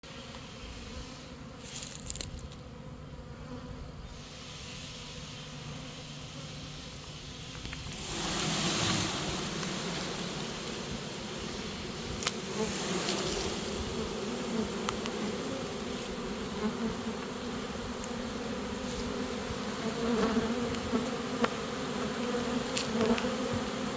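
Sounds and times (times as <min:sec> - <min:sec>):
bees buzzing: 0:00.0 - 0:23.9.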